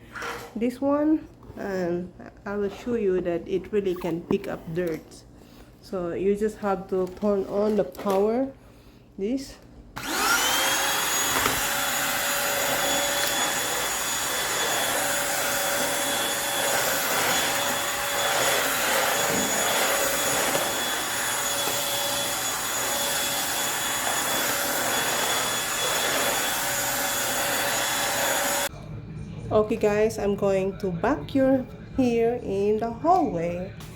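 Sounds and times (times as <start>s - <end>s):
stick vacuum running: 10.0s - 28.7s.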